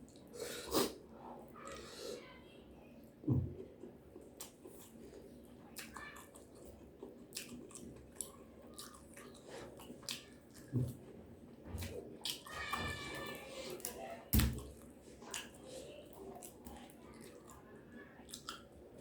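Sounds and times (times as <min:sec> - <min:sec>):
person chewing and crunching: 0:04.2 - 0:11.2, 0:16.2 - 0:19.0.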